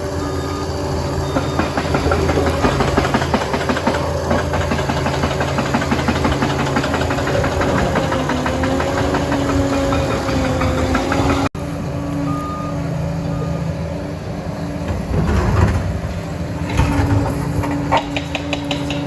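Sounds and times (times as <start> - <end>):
dozer diesel engine running: 0.0 - 19.0
machine clanks and knocks: 1.3 - 11.5, 14.9 - 19.0.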